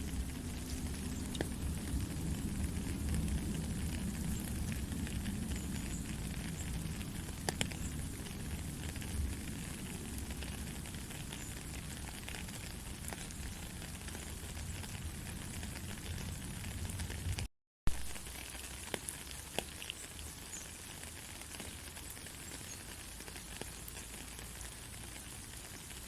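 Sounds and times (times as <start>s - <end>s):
low rumble: 0.0s - 12.0s
gentle steady rain: 0.0s - 26.0s.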